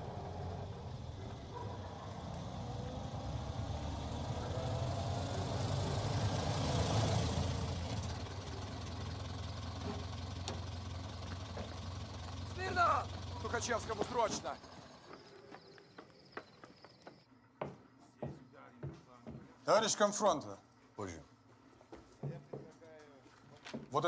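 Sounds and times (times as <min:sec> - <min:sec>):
old car engine running: 0:00.0 - 0:17.2.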